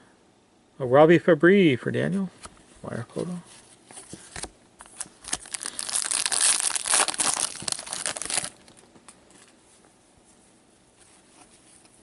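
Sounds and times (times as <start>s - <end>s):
wrapper crinkling and tearing: 4.8s - 8.9s.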